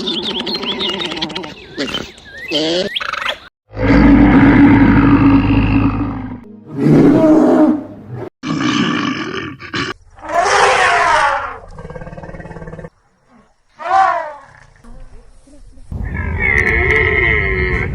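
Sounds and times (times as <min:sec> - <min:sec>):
loud animal calls: 0:09.6 - 0:14.8.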